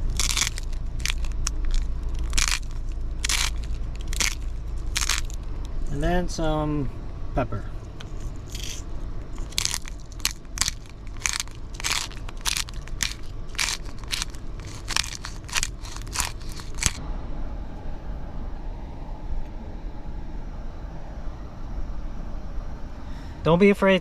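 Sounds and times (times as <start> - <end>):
pepper grinder grinding: 0.0 - 5.4, 8.0 - 17.0.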